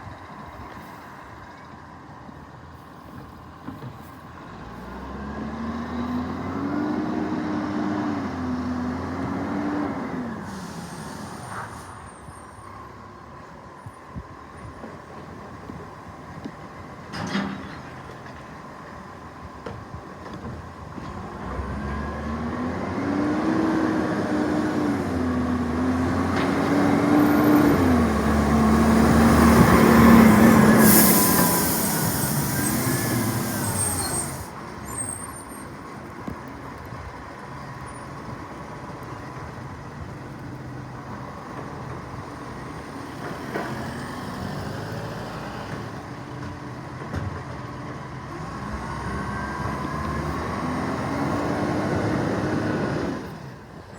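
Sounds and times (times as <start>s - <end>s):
garbage truck engine revving: 21.2s - 35.1s, 48.2s - 53.7s
air hissing: 28.6s - 34.6s.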